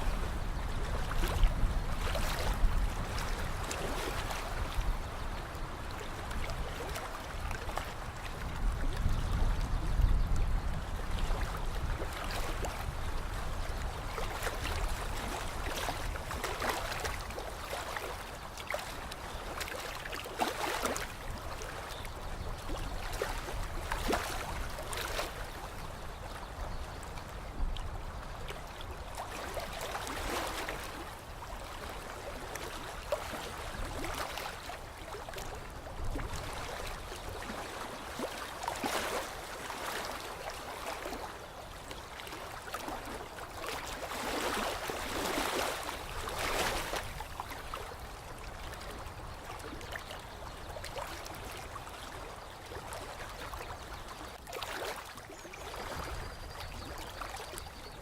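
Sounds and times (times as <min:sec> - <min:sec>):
small waves lapping at shore: 0:00.0 - 0:58.0.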